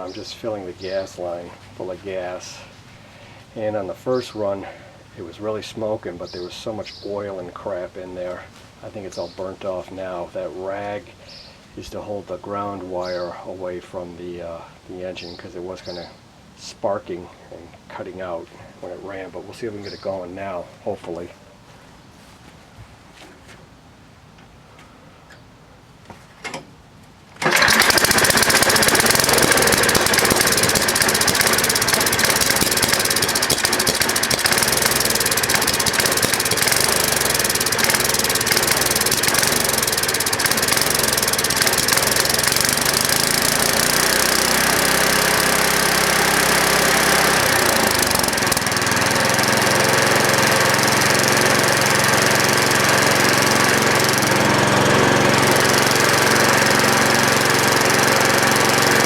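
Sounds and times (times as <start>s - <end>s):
small engine running: 27.4s - 59.0s.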